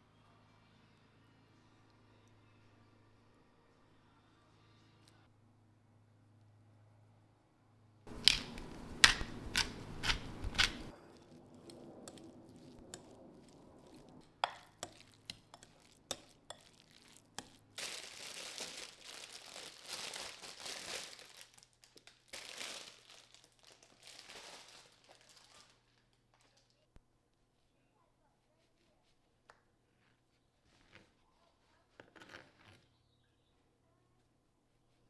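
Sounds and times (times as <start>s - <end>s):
crinkly scraping and rustling: 8.1s - 26.8s.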